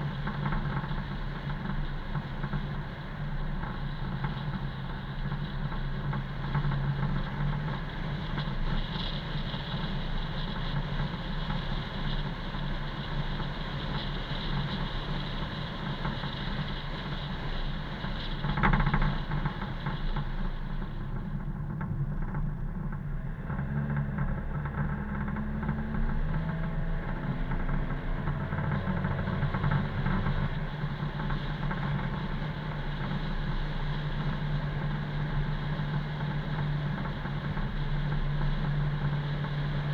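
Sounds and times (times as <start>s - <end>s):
car engine and road noise: 22.2s - 39.9s.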